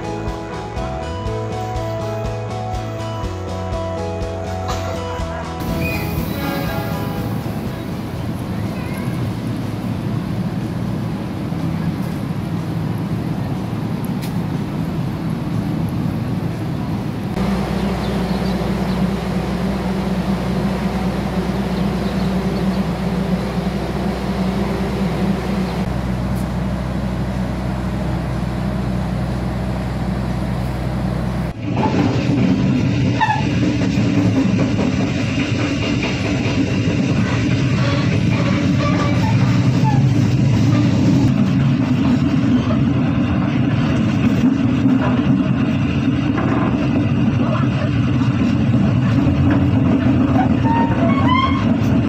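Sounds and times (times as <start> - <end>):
diesel train engines idling: 0.0 - 52.0.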